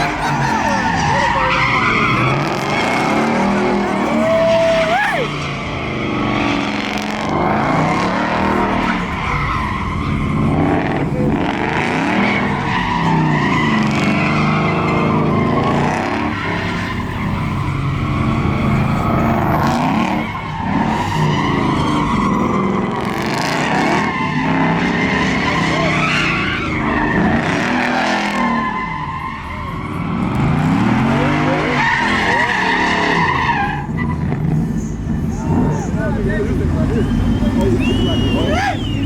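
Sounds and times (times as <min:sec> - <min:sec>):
tyres squealing: 0:00.0 - 0:06.7, 0:28.6 - 0:39.0
car engine revving: 0:00.0 - 0:39.0.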